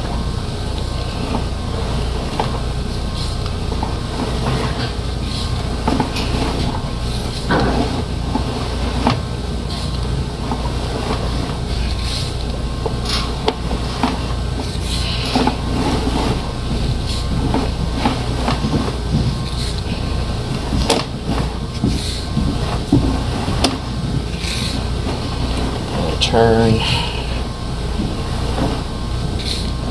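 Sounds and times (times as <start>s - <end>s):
low motor hum: 0.0s - 29.9s
knocks and clanks: 3.4s - 9.4s, 12.7s - 29.9s.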